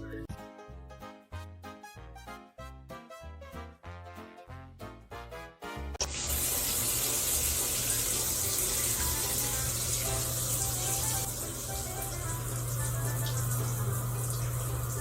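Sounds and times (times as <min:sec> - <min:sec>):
light music: 0:00.0 - 0:15.0
rushing water: 0:06.0 - 0:15.0.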